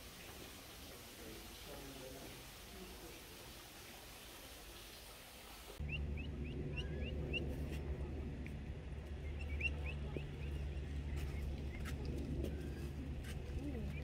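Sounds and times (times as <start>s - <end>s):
bird chirping: 5.8s - 7.6s, 9.1s - 13.0s
low hum: 5.8s - 14.0s.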